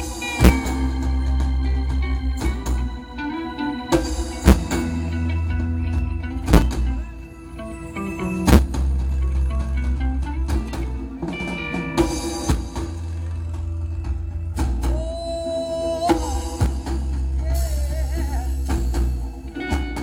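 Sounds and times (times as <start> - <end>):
drum kit hits: 0.0 - 2.9, 4.0 - 5.0, 6.0 - 7.1
bass line: 0.0 - 20.0
reggae band playing: 0.0 - 20.0
wavering melodic line: 0.0 - 20.0.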